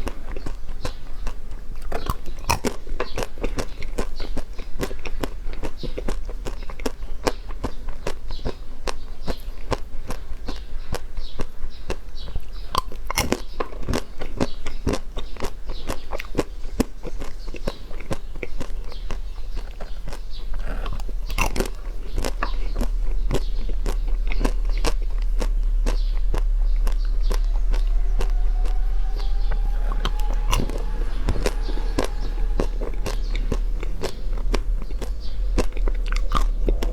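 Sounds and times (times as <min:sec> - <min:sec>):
chewing crunchy food: 0:00.0 - 0:36.9
low hum: 0:18.9 - 0:36.9.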